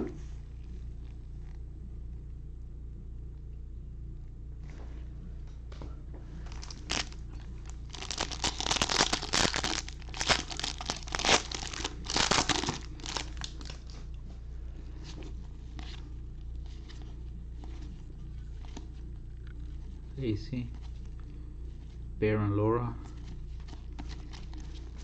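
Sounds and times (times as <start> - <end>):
steady low hum: 0.0 - 25.0
foil wrapper tearing and crinkling: 6.5 - 13.8.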